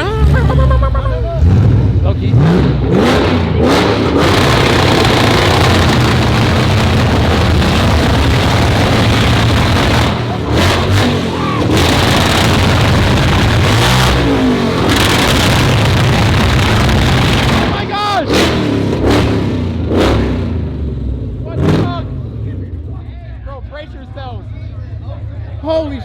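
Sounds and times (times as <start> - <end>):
car engine revving loudly: 0.0 - 22.5.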